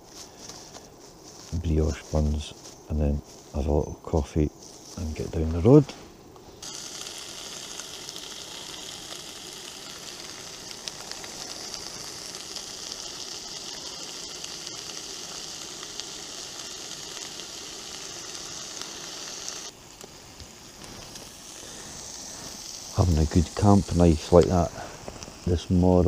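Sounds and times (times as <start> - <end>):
bacon sizzling in a frying pan: 6.6 - 26.0.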